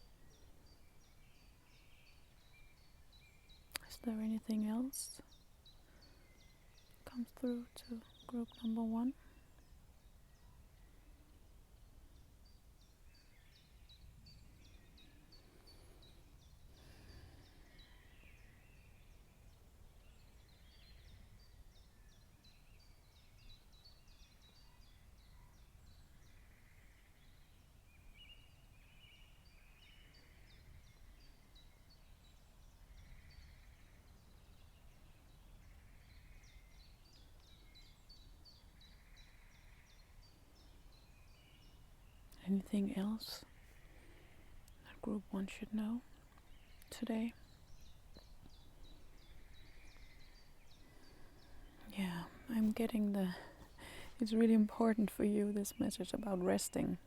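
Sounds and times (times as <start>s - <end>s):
birds chirping and trilling: 0.0s - 57.0s.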